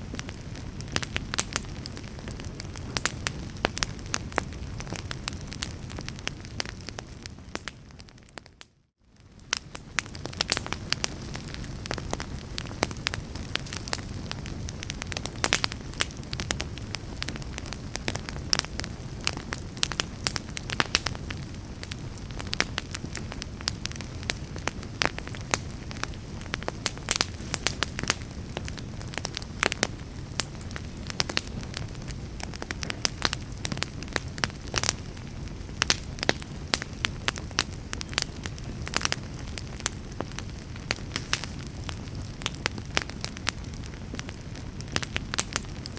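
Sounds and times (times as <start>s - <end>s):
low rush of flames: 0.0s - 45.9s
wood fire crackling and popping: 0.0s - 45.9s.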